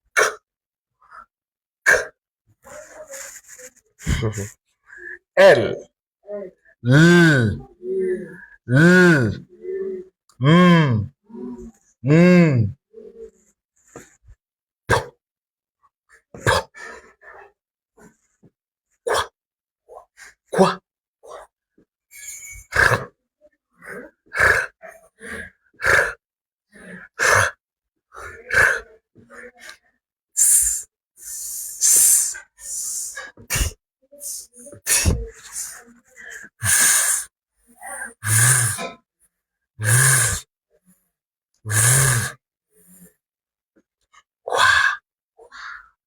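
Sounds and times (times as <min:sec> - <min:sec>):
man voicing letter sounds: 0:06.8 - 0:07.6.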